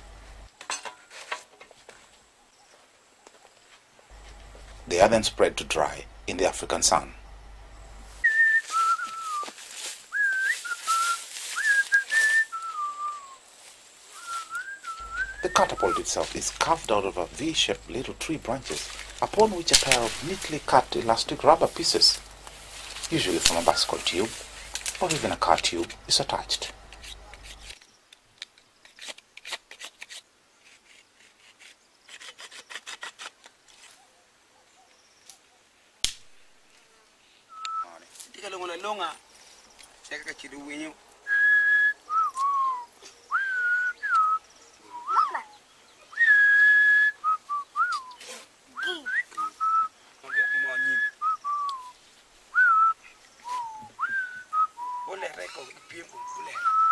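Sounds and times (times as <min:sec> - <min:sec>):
wood rubbing and scraping: 0:04.1 - 0:07.0, 0:14.3 - 0:27.8
person whistling a tune: 0:08.2 - 0:09.5, 0:10.1 - 0:13.4, 0:14.2 - 0:16.1, 0:37.5 - 0:37.9, 0:41.3 - 0:45.3, 0:46.2 - 0:48.2, 0:48.8 - 0:51.9, 0:52.6 - 0:55.2, 0:56.2 - 0:56.9
sharp wooden snap: 0:19.7 - 0:20.4, 0:36.0 - 0:36.4.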